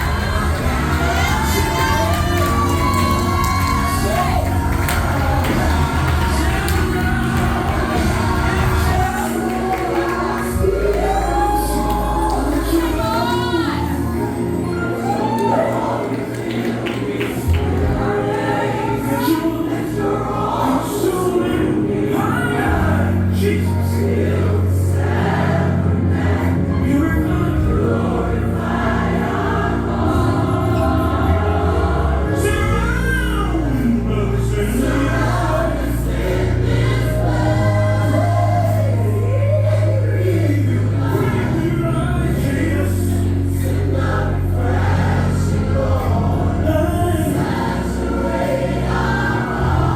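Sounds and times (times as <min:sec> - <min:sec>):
band accompaniment: 0:00.0 - 0:11.5
steady bass line: 0:00.0 - 0:15.7
gospel choir singing: 0:00.0 - 0:49.9.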